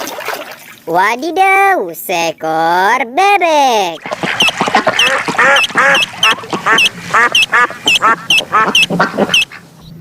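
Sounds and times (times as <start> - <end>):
duck quacking: 4.0 - 9.6.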